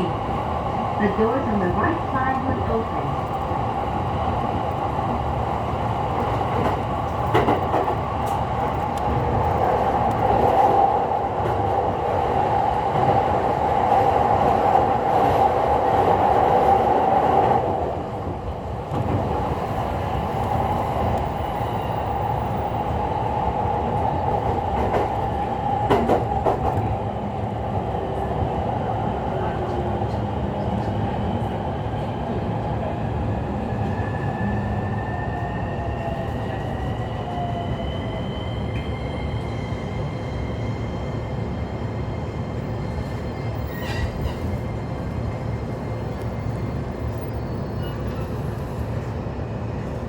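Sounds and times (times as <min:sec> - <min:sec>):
train wheels rolling on rails: 0:00.1 - 0:32.3.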